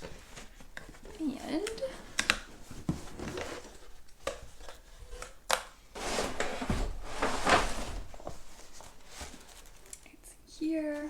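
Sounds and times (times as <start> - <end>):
rustling scraping slide: 5.9 - 10.0.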